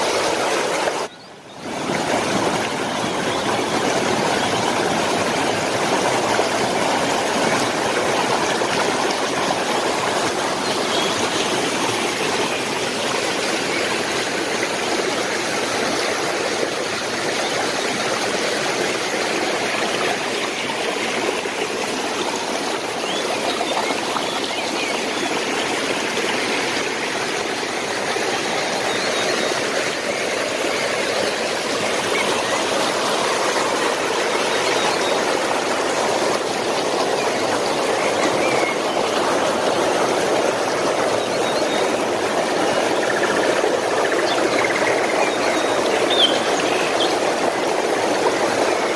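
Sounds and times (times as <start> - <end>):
stream water flowing: 0.0 - 48.9.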